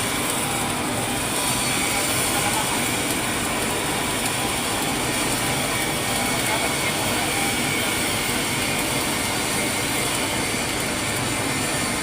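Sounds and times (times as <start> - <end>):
welding machine running with hiss: 0.0 - 12.0.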